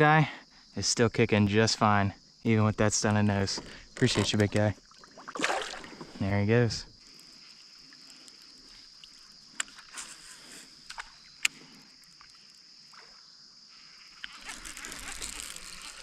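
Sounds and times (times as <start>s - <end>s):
steady high-pitched hiss: 0.0s - 16.0s.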